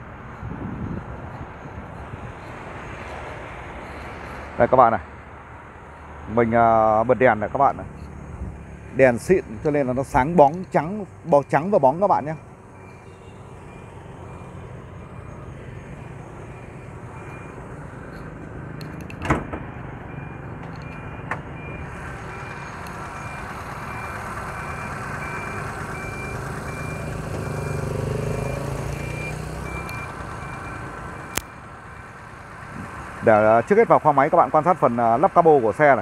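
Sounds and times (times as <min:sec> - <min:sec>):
faint high beep: 0:12.8 - 0:14.5
car engine idling: 0:20.6 - 0:27.3.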